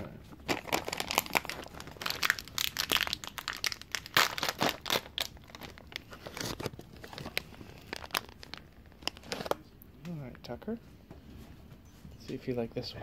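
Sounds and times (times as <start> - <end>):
packaging crinkling and tearing: 0.3 - 9.7.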